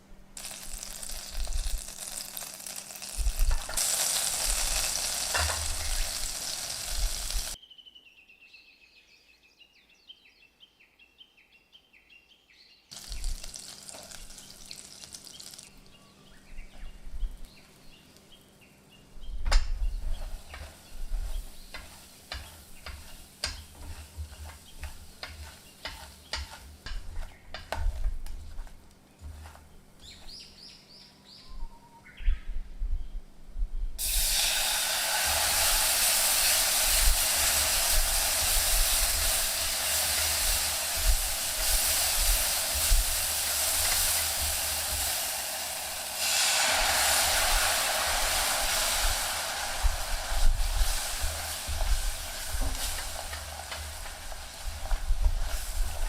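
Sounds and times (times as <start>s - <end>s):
food sizzling in a frying pan: 0.4s - 7.6s, 12.9s - 15.8s, 19.8s - 29.6s, 34.0s - 56.0s
spatula tapping against pan: 20.5s - 28.0s.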